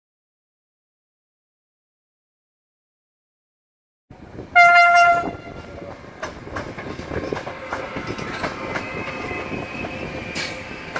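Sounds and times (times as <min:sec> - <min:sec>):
locomotive horn blast: 0:04.5 - 0:05.7
train wheels clacking: 0:05.0 - 0:10.9.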